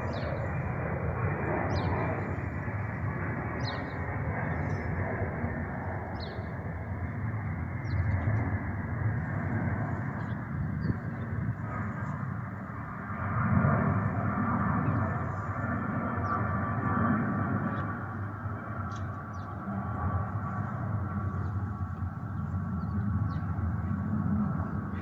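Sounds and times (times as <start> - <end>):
aircraft engines rumbling: 0.0 - 25.0
small birds chirping: 3.6 - 4.9, 6.1 - 6.6, 7.8 - 8.4.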